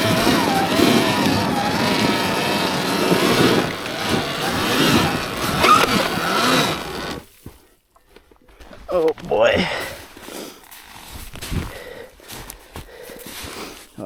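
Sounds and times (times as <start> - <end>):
electric motor whining: 0.0 - 7.2.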